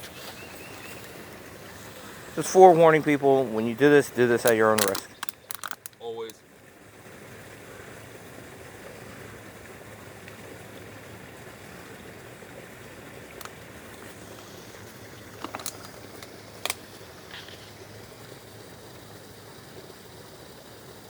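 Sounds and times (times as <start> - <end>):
spring water running: 0.0 - 21.0
sharp clicks: 4.4 - 6.4.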